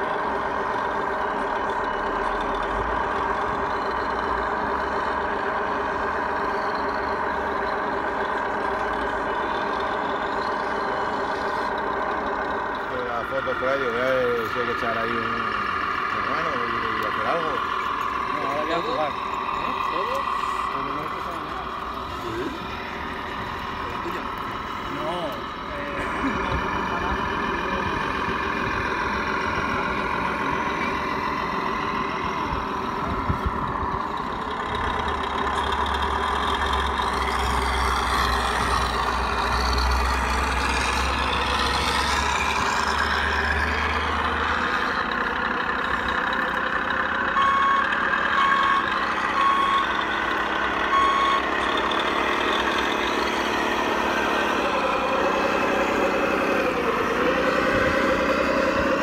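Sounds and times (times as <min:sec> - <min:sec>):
electronic truck engine sound: 0:00.0 - 0:59.0
reversing alarm beeping: 0:47.3 - 0:51.7.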